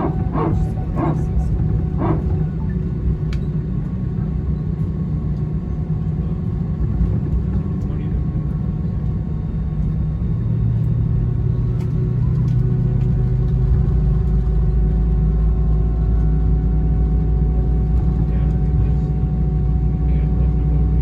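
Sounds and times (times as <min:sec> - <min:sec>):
steady tonal hum: 0:00.0 - 0:05.3
airliner cabin rumble: 0:00.0 - 0:21.0.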